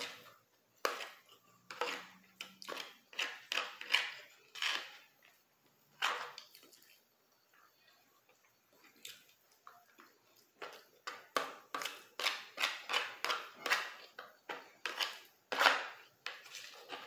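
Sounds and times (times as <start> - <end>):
person chewing spaghetti: 1.1 - 5.4.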